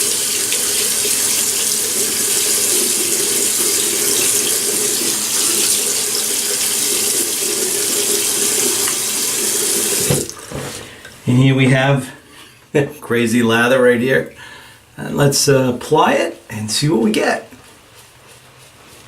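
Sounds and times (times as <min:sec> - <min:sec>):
water running from a tap into a sink: 0:00.0 - 0:10.7.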